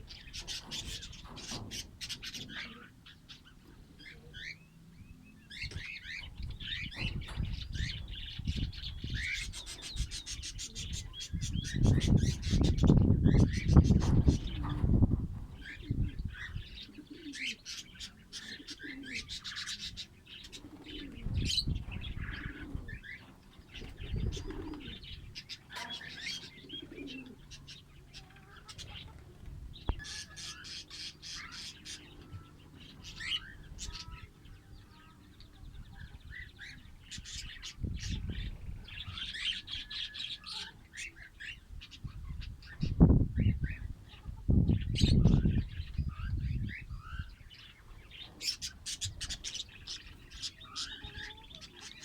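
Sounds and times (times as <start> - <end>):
lovebirds chirping: 15.6 - 52.0.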